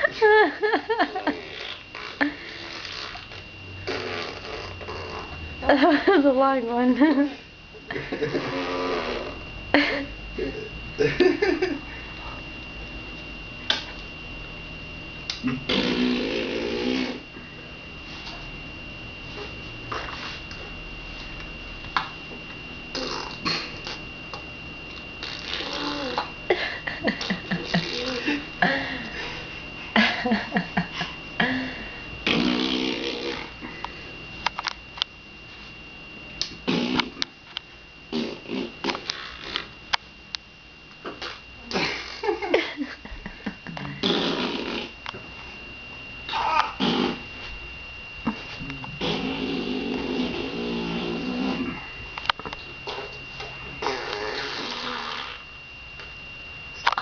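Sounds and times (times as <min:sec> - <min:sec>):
baby blowing a raspberry: 0:01.4 - 0:05.3, 0:15.5 - 0:17.2, 0:22.9 - 0:24.0, 0:25.2 - 0:26.3, 0:27.6 - 0:28.3, 0:32.2 - 0:33.5, 0:36.6 - 0:37.2, 0:38.1 - 0:39.7, 0:44.0 - 0:44.9, 0:46.3 - 0:47.2, 0:49.0 - 0:51.8, 0:53.8 - 0:55.4.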